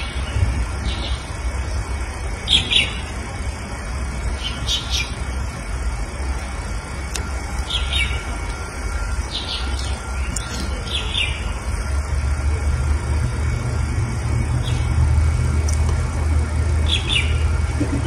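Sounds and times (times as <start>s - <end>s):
small birds chirping: 0.0s - 3.2s, 4.3s - 5.4s, 7.6s - 8.3s, 9.2s - 11.6s, 14.6s - 14.9s, 16.8s - 17.5s
steady low rumble: 0.0s - 18.0s.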